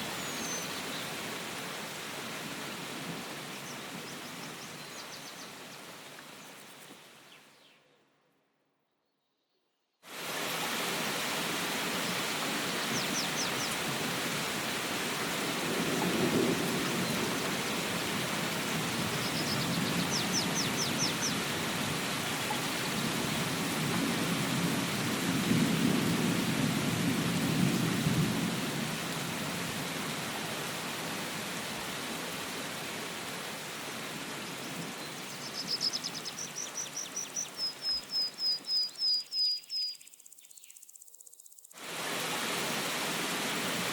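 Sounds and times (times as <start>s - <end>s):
heavy rain hissing: 10.1s - 35.4s, 41.8s - 43.9s
bird chirping: 35.0s - 41.7s.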